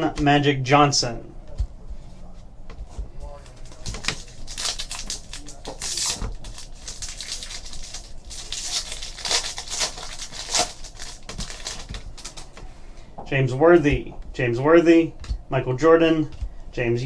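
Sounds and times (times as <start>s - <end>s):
cards clicking and rustling: 2.7s - 12.7s.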